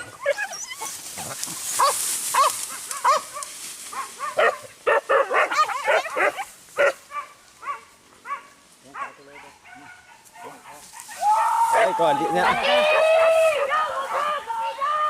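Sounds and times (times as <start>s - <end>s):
dogs barking: 1.7s - 11.9s.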